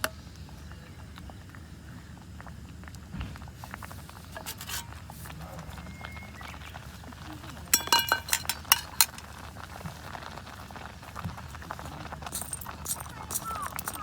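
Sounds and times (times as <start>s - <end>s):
metal utensils clinking: 4.3s - 5.1s, 7.7s - 9.4s, 12.3s - 14.0s.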